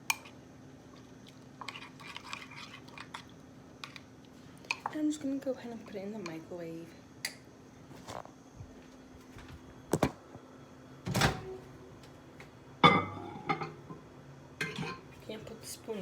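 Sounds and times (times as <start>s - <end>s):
microwave door knocks and clunks: 11.0s - 11.6s.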